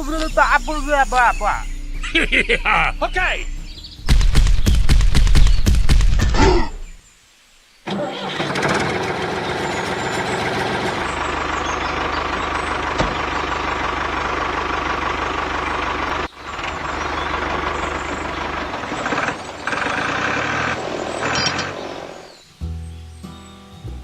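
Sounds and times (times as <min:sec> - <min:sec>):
engine running with low rumble: 0:08.4 - 0:22.4.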